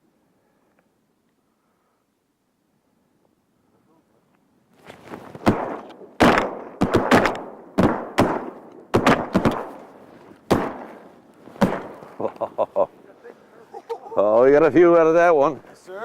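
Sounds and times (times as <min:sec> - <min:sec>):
shotgun blasts echoing: 0:05.4 - 0:09.9, 0:10.5 - 0:12.2.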